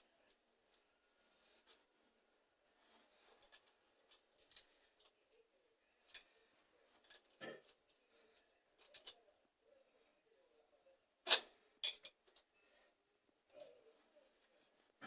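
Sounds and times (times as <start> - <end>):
small hard parts clinking: 3.2 - 5.2, 6.0 - 8.0, 8.8 - 9.3, 11.3 - 12.4.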